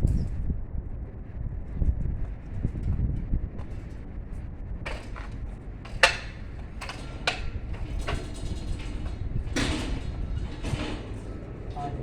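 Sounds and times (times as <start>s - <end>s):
steady low rumble: 0.0s - 12.0s
sharp knocks and clicks: 4.9s - 11.5s.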